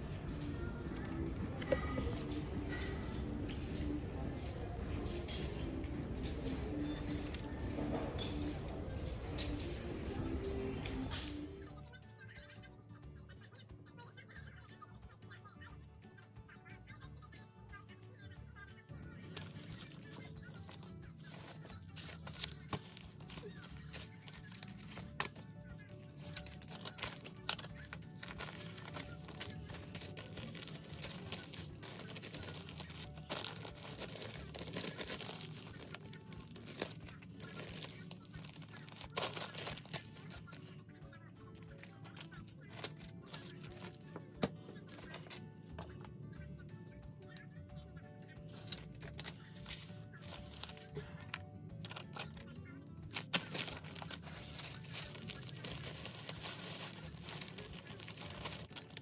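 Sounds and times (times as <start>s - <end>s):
packaging crinkling and rustling: 19.3s - 25.5s, 26.1s - 40.7s, 41.6s - 45.4s, 48.5s - 52.4s, 53.1s - 59.0s
packaging tearing: 19.4s - 25.5s, 26.2s - 40.7s, 41.6s - 44.0s, 48.6s - 52.4s, 53.1s - 59.0s.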